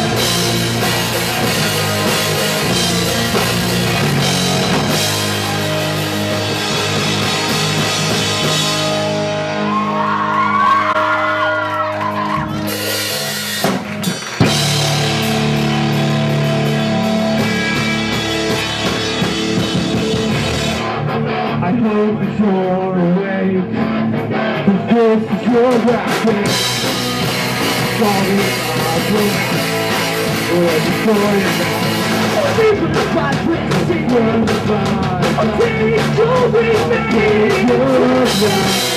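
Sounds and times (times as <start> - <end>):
punk rock band playing live: 0.0 - 38.9
person singing: 21.6 - 38.9.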